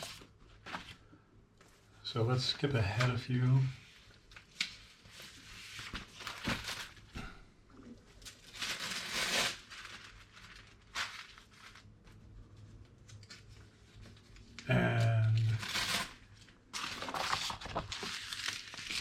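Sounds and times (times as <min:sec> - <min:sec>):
sheets rustling and sliding: 0:08.2 - 0:12.1.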